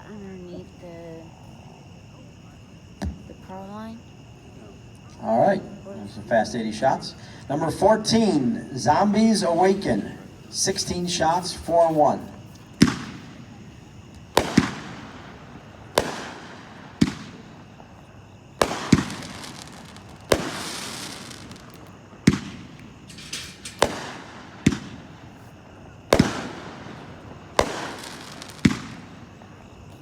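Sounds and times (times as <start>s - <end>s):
firework cake bangs: 8.9s - 30.0s.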